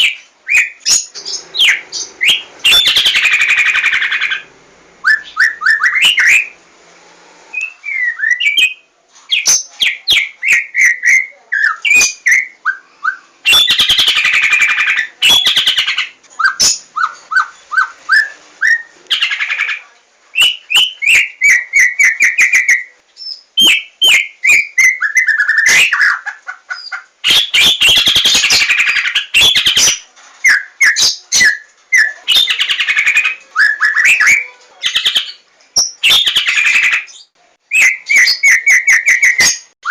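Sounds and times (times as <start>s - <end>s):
bird singing whistled notes: 5.0s - 6.6s, 7.5s - 15.8s, 20.4s - 26.1s, 29.3s - 39.9s.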